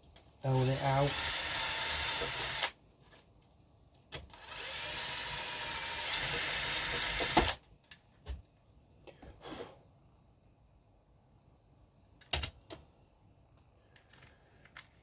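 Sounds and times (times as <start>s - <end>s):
electric drill running: 0.6s - 2.8s, 4.4s - 7.6s.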